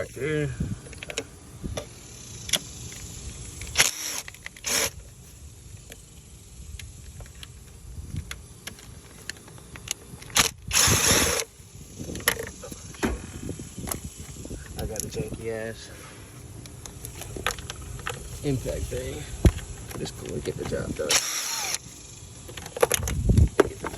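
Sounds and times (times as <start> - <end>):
tools clicking and knocking: 12.1 - 13.1, 19.4 - 23.9.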